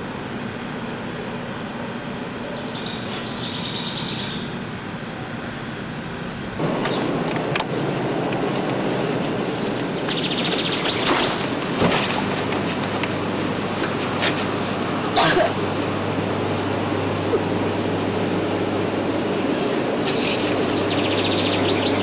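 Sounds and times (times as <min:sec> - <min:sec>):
outdoor background hiss: 0:00.0 - 0:22.0
small bird chirping: 0:02.5 - 0:04.6, 0:09.3 - 0:11.4, 0:20.1 - 0:22.0.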